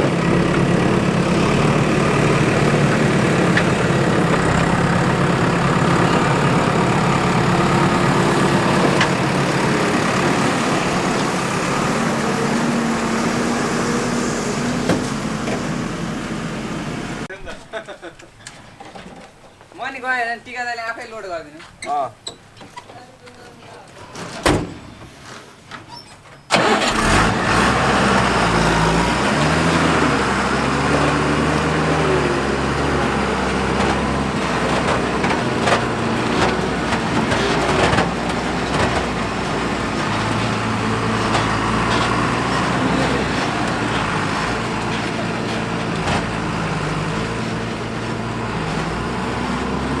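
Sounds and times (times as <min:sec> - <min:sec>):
diesel engine revving: 0:00.0 - 0:17.3, 0:26.5 - 0:50.0.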